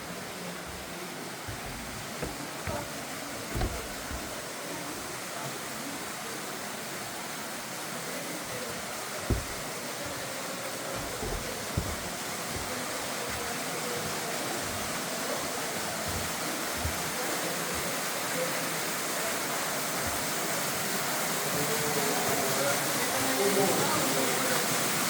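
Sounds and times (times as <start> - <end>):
low thumps on microphone: 0.6 - 5.1, 8.5 - 9.8, 11.0 - 13.4.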